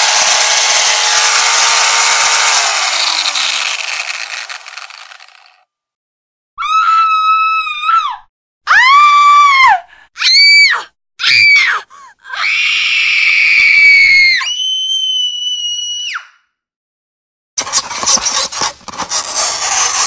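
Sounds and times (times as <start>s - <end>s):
woman screaming: 6.6s - 14.5s.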